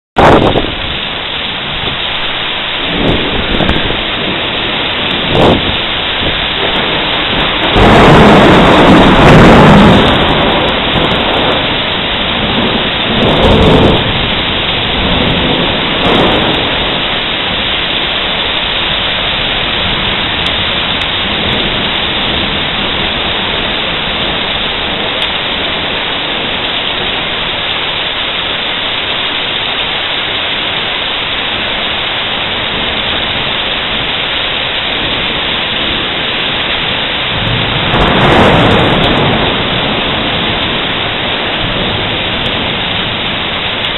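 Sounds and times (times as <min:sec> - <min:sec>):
thunder rolling: 0:00.2 - 0:29.6, 0:30.6 - 0:43.9
heavy rain: 0:00.2 - 0:43.9.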